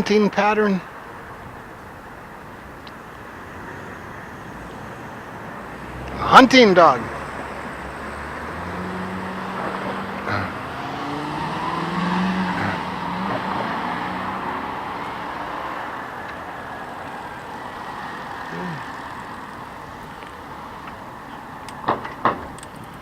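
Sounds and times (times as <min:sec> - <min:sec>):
road vehicle passing: 0:00.0 - 0:23.0
sharp clicks: 0:21.6 - 0:23.0.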